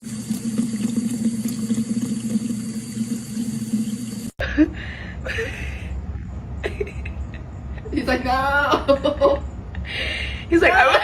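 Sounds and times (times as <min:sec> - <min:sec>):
tap water running: 0:00.0 - 0:04.4.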